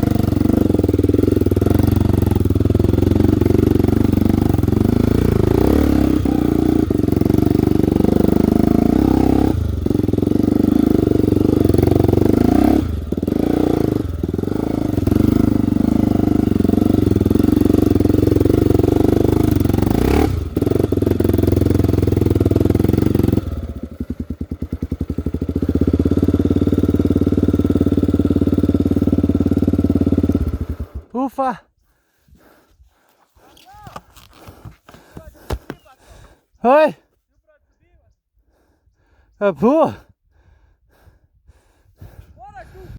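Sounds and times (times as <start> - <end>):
motorcycle engine running hard: 0.0 - 31.5.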